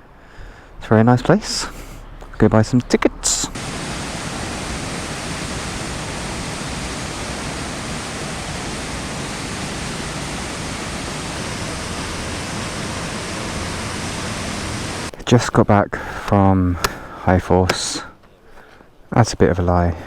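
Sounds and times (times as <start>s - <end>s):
rush of falling water: 3.5s - 15.2s.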